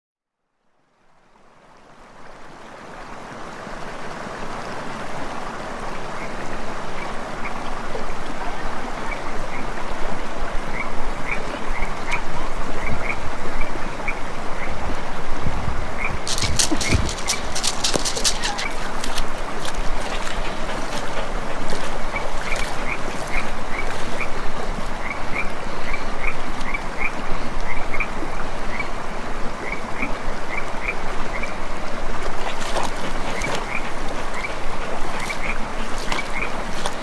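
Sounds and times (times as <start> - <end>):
creek water running: 0.9 - 37.0
frogs croaking: 16.0 - 28.0, 32.2 - 37.0.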